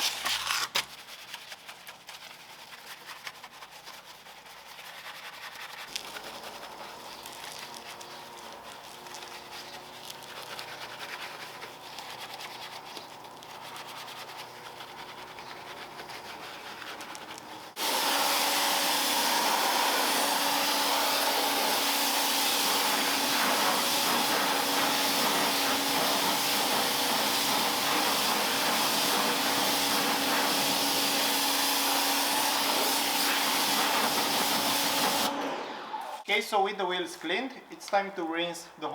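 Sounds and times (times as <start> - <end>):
electric pressure washer running: 5.9 - 12.3, 17.5 - 36.0
water jet hissing: 5.9 - 35.4.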